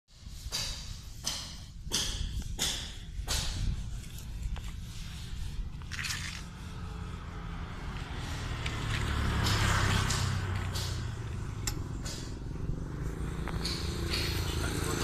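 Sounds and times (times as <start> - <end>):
motorcycle engine revving: 5.6 - 15.0.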